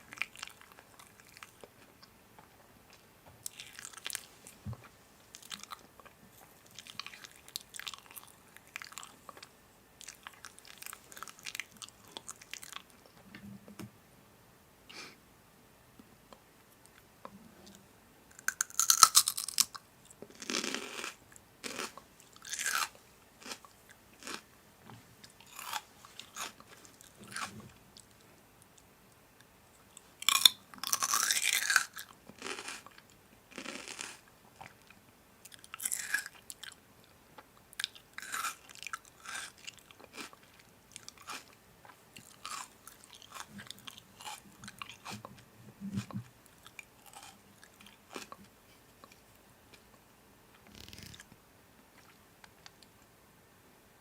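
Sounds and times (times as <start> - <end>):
crisp food crunching: 18.4 - 19.8, 20.4 - 24.4, 25.2 - 28.1, 30.2 - 36.8, 37.8 - 41.6, 42.2 - 45.3, 46.0 - 48.4.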